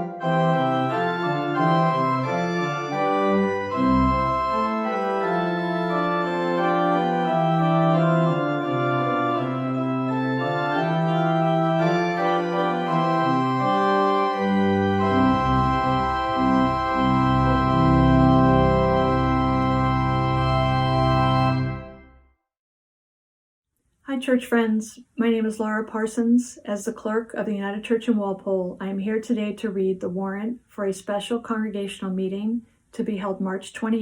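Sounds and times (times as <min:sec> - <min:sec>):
organ chords: 0:00.0 - 0:22.3
deep bass line: 0:12.8 - 0:22.0.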